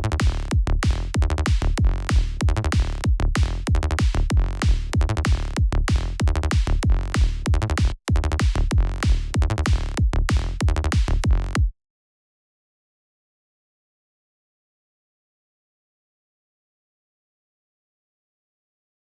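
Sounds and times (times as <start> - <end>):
electronic kick drum: 0.0 - 11.7
synth bass dance groove: 0.0 - 11.7.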